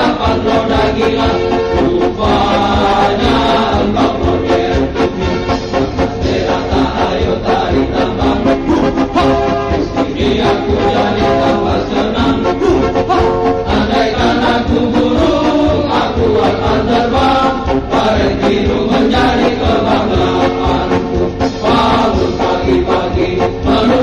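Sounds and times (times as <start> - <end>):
men chanting a marching song: 0.0 - 24.0.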